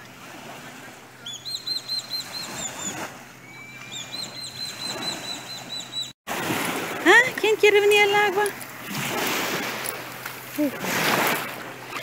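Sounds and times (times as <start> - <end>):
small waves washing on shore: 0.0 - 12.0
bird chirping: 1.2 - 6.1.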